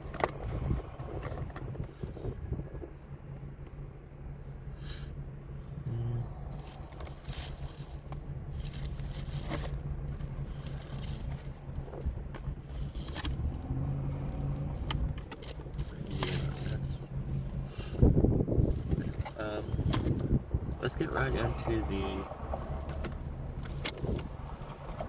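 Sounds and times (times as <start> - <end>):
plastic containers clicking and scraping: 0.0 - 2.9, 6.5 - 17.0, 18.6 - 25.0
steady low hum: 0.0 - 21.4.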